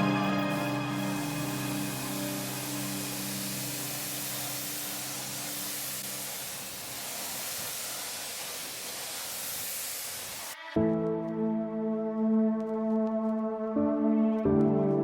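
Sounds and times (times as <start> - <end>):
background music: 0.0 - 4.8, 10.6 - 15.0
pressure washer spraying water: 0.0 - 10.6.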